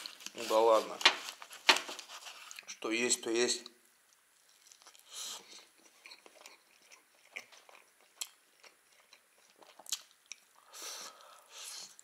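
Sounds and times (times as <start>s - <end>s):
person chewing food: 4.1s - 12.0s.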